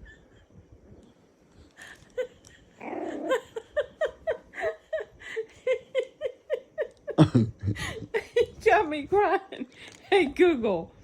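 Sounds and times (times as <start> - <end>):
hearty laughter: 2.0 - 8.6.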